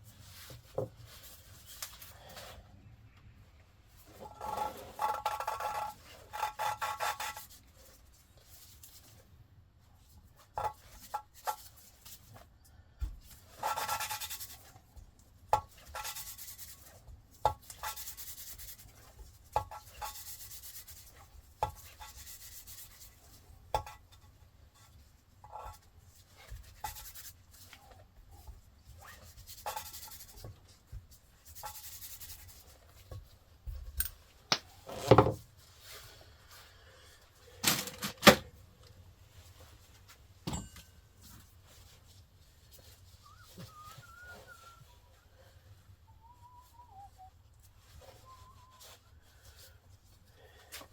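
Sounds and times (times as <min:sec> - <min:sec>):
rubbing or scraping strokes: 0:03.8 - 0:12.5, 0:15.6 - 0:23.6, 0:24.2 - 0:33.3, 0:34.7 - 0:37.6.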